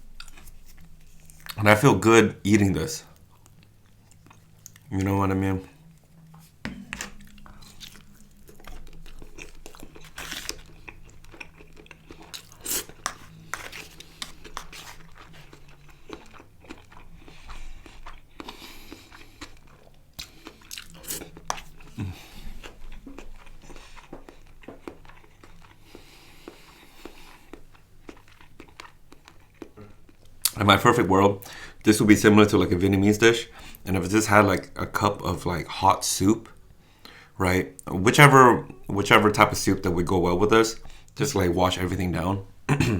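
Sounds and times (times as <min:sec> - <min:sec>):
person chewing food: 0:00.0 - 0:01.6, 0:03.0 - 0:30.6.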